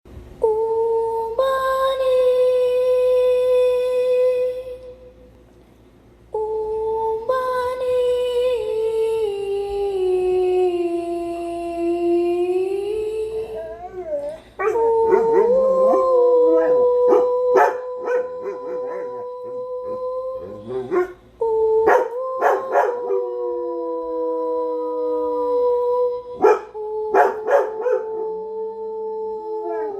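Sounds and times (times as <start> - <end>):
dogs howling: 13.4 - 21.2, 21.9 - 24.7, 26.4 - 28.5, 29.6 - 29.9
dogs yipping and barking: 14.6 - 19.3.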